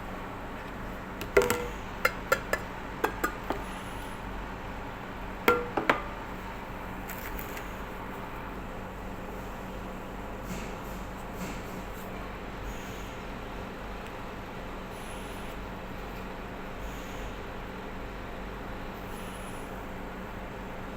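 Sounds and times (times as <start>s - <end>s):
hard objects clicking and knocking: 1.2s - 3.6s.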